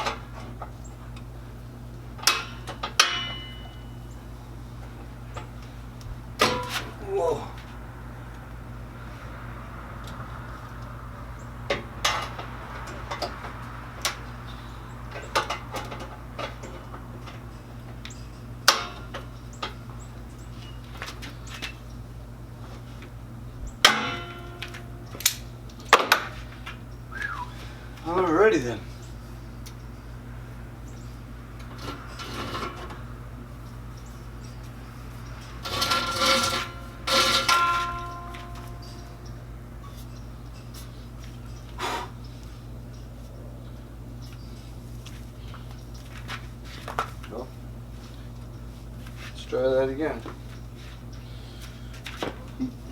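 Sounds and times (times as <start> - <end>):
steady low hum: 0.0 - 52.9
metallic clanks and knocks: 2.2 - 3.9, 6.4 - 7.0, 11.7 - 14.2, 15.1 - 17.5, 18.2 - 19.8, 23.8 - 26.4, 35.4 - 40.0
metallic ringing: 2.3 - 4.2, 23.8 - 25.5, 35.4 - 40.7
metal parts clanking and scraping: 6.4 - 7.0, 23.8 - 25.5, 31.7 - 33.1, 35.4 - 40.0.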